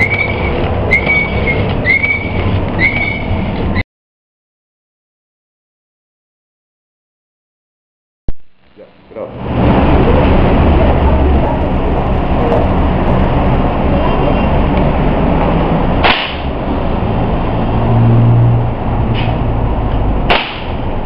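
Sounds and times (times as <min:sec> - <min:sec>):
loud steady rumble: 0:00.0 - 0:03.8, 0:08.3 - 0:21.0.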